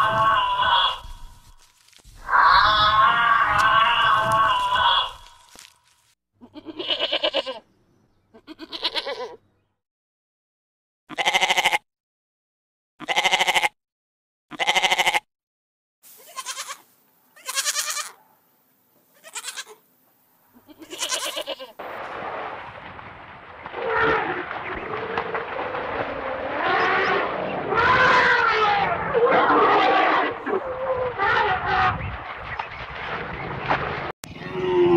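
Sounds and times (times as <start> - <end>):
lamb bleating: 0.0 - 1.1, 2.3 - 5.6, 6.4 - 7.6, 8.3 - 9.4, 11.1 - 11.8, 13.0 - 13.8, 14.5 - 15.3, 16.2 - 16.8, 17.4 - 18.2, 19.2 - 19.8, 20.6 - 21.8.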